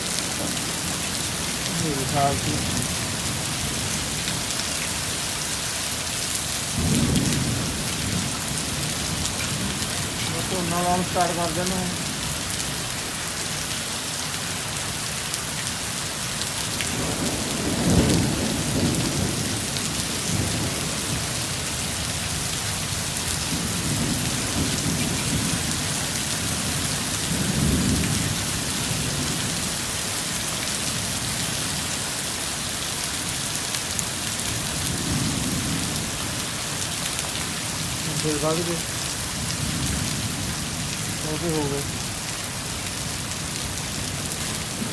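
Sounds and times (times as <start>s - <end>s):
rolling thunder rumbles: 0.0s - 5.3s, 6.7s - 12.5s, 16.8s - 29.8s, 34.5s - 44.9s
heavy rain pouring: 0.0s - 44.9s.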